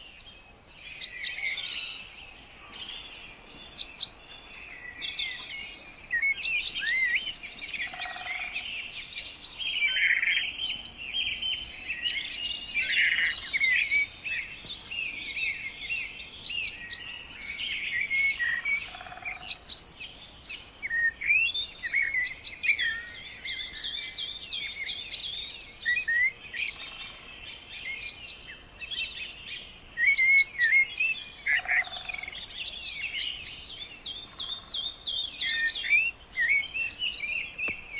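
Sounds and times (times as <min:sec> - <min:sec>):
birds singing and chirping: 0:00.0 - 0:37.9.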